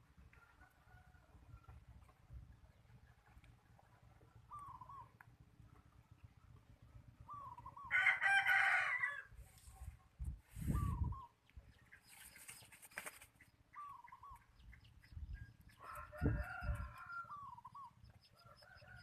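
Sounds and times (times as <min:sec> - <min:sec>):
rooster crowing: 0:07.8 - 0:09.3, 0:15.8 - 0:17.6, 0:18.4 - 0:19.0.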